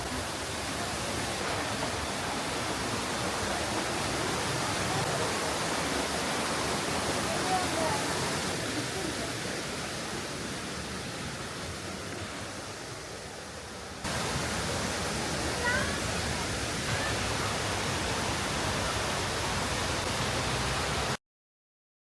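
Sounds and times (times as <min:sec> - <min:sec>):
waterfall rushing: 0:00.0 - 0:21.2.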